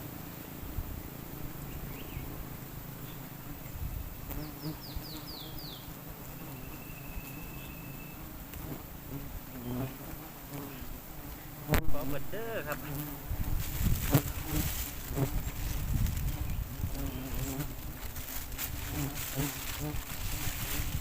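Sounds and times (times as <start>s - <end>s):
bees buzzing: 0.0s - 21.0s
falling whistled notes: 6.3s - 8.2s.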